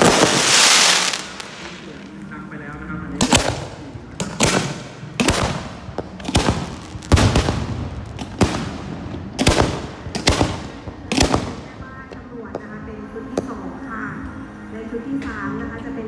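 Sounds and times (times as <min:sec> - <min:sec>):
fireworks bangs: 0:00.0 - 0:02.5, 0:03.2 - 0:12.2.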